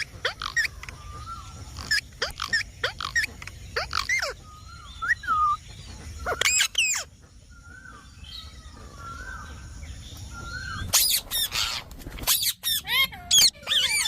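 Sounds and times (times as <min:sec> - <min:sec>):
parrot chattering: 0:01.8 - 0:04.4, 0:12.6 - 0:14.0
parrot screeching: 0:10.9 - 0:14.0.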